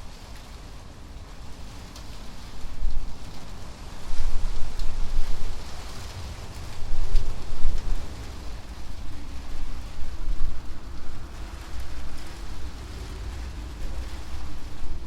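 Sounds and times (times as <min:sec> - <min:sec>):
rain on a tin roof: 0:00.0 - 0:15.0
wind rumbling on microphone: 0:00.0 - 0:15.0.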